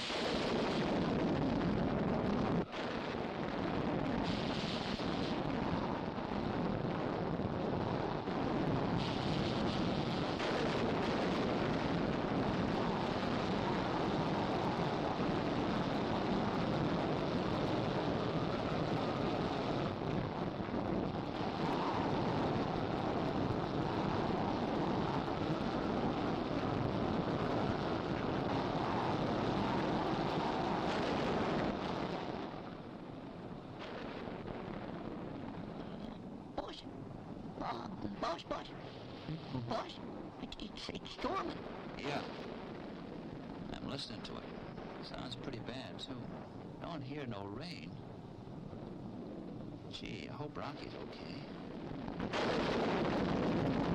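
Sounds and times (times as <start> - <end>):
thunder rumbling: 0.0 - 53.9.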